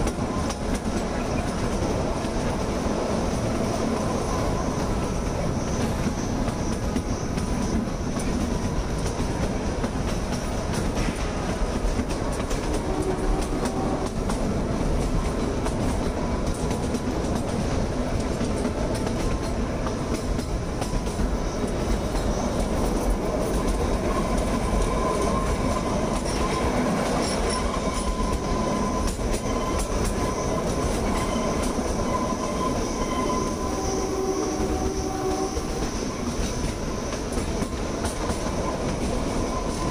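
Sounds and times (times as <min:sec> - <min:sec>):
train wheels rumbling on rails: 0:00.0 - 0:39.9
faint wheel squeals: 0:25.0 - 0:36.3.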